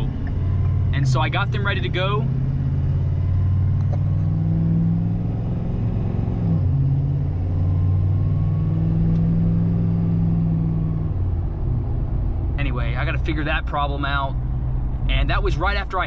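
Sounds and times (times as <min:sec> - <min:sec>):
truck engine heard from cab: 0:00.0 - 0:16.0.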